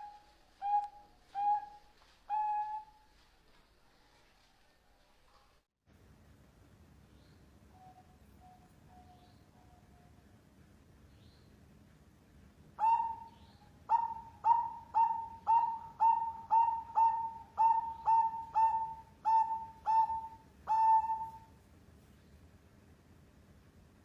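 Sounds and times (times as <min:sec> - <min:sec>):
zebra dove cooing: 0:12.8 - 0:21.5.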